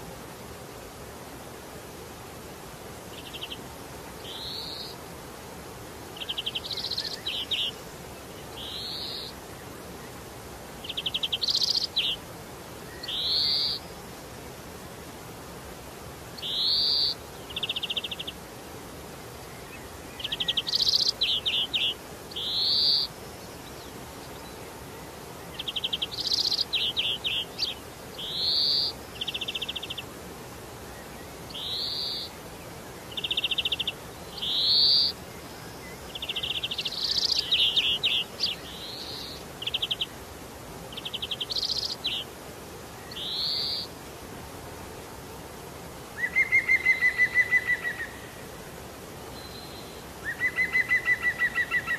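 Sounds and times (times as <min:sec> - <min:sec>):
bird calling with trills: 0:08.6 - 0:09.3, 0:12.9 - 0:13.8, 0:16.4 - 0:18.4, 0:20.2 - 0:23.1, 0:25.6 - 0:30.0, 0:31.6 - 0:32.3, 0:33.1 - 0:35.2, 0:36.2 - 0:40.1, 0:43.1 - 0:43.9, 0:46.2 - 0:48.3, 0:49.4 - 0:51.9.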